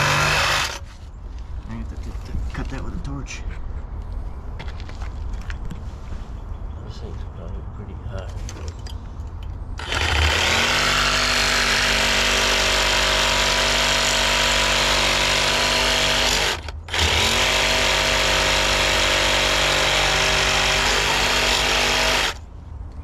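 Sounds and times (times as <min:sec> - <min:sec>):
pneumatic air hammer buzzing: 0:00.0 - 0:00.9, 0:09.8 - 0:22.4.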